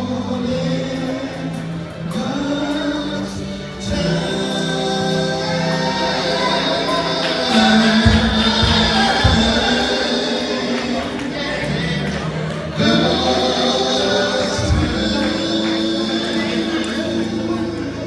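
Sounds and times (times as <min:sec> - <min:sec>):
choir singing gospel chords: 0:00.0 - 0:18.0
low drum thumps: 0:08.0 - 0:10.0.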